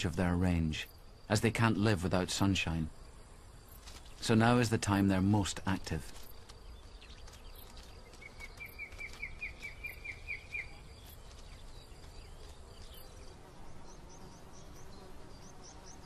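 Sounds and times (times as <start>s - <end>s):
insect buzzing: 0.0s - 16.0s
small bird chirping: 6.1s - 16.0s.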